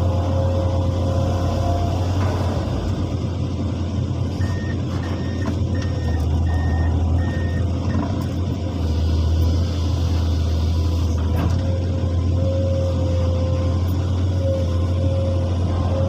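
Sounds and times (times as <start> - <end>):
heavy diesel engine running: 0.0 - 16.0
backup alarm beeps: 4.4 - 8.0.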